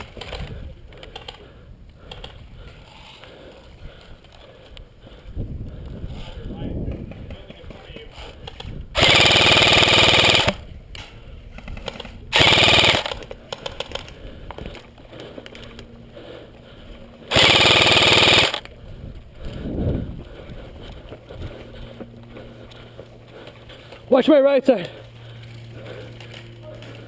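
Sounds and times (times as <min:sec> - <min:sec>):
airsoft rifle full-auto bursts: 0:09.0 - 0:10.6, 0:12.3 - 0:13.2, 0:17.3 - 0:18.7.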